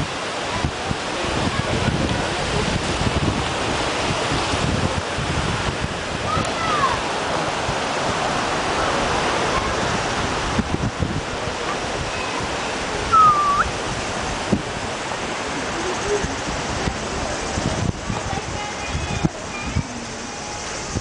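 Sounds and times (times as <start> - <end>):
falling water rushing: 0.0 - 21.0
short high whistle: 13.1 - 13.7.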